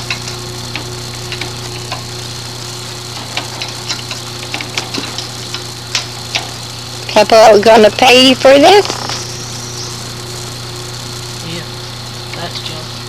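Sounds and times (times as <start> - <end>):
hand tools tapping engine parts: 0.0 - 2.1, 3.1 - 6.6
steady low hum: 0.0 - 13.0.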